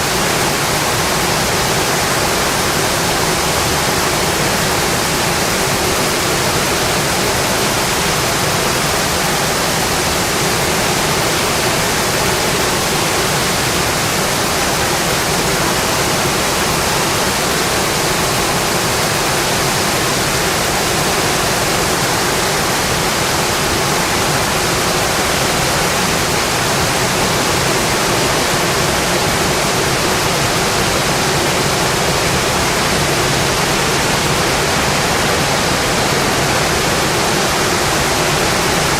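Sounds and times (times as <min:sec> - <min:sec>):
rain hissing on a window: 0:00.0 - 0:38.9.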